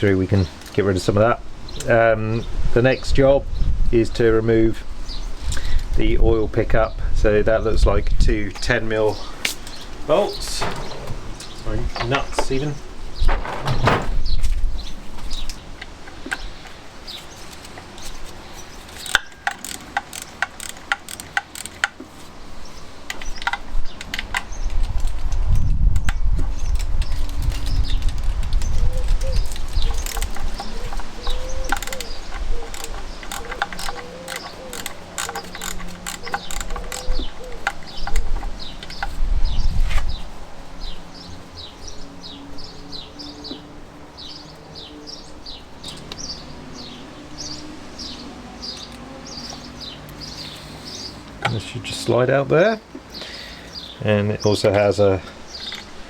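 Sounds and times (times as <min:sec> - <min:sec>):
small birds chirping: 0:00.0 - 0:56.0
ratchet clicking: 0:18.9 - 0:22.0, 0:31.4 - 0:38.2.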